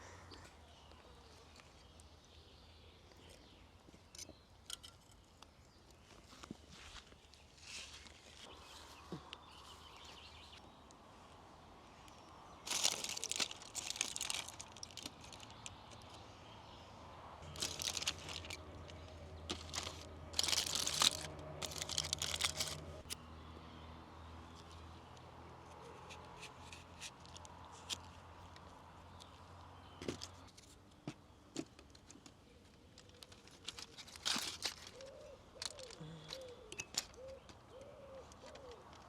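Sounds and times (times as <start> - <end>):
rustling and crinkling handling noise: 5.0 - 10.6, 11.9 - 16.2, 17.4 - 23.2, 26.0 - 39.0.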